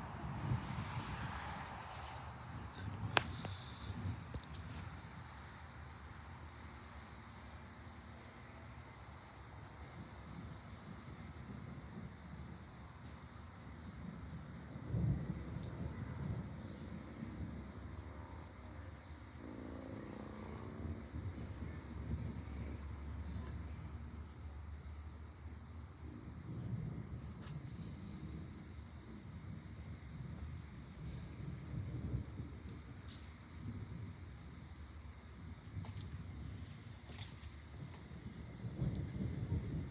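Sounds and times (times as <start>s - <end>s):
crickets trilling: 0.0s - 39.9s
distant thunder rumbling: 13.8s - 24.3s, 26.0s - 36.7s, 37.7s - 39.9s.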